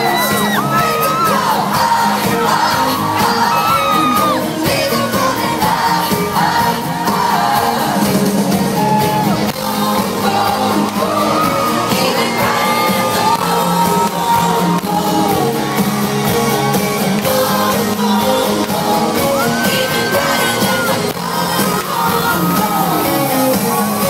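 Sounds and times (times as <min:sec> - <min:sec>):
live band playing pop song: 0:00.0 - 0:24.0
person singing long notes: 0:09.1 - 0:24.0.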